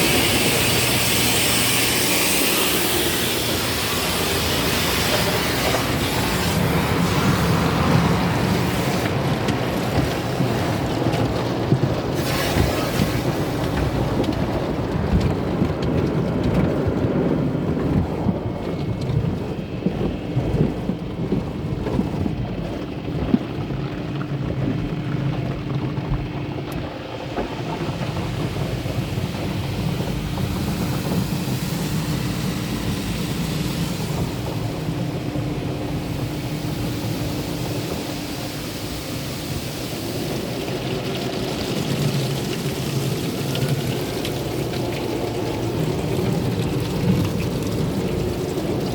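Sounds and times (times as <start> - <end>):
water spray rushing: 0.0 - 11.4, 12.1 - 14.2, 27.5 - 48.9
low rumble: 5.6 - 48.9.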